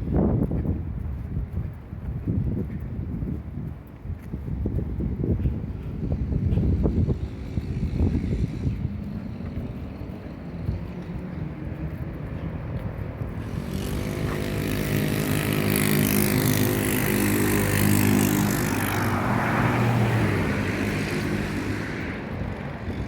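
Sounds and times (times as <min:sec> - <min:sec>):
vehicle driving past: 0:05.6 - 0:23.0.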